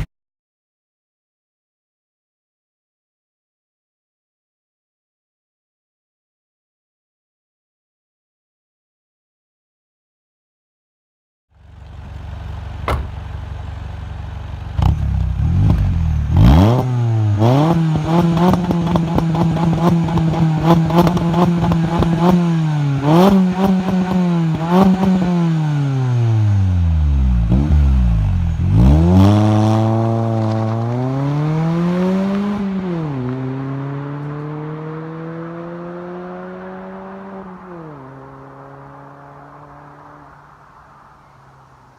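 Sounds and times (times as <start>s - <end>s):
exhaust crackle: 11.6s - 34.4s
car engine revving: 11.8s - 41.2s.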